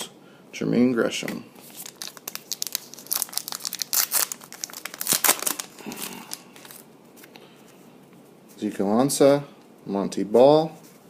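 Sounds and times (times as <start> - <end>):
foil wrappers tearing and crinkling: 1.6 - 6.8.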